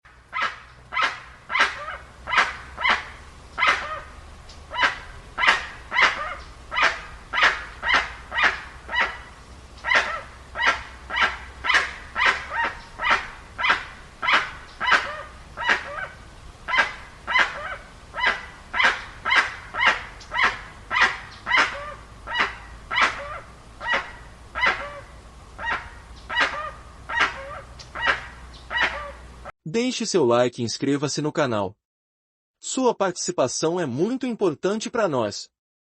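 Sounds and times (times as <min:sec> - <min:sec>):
guan harsh barking calls: 0:00.3 - 0:29.3.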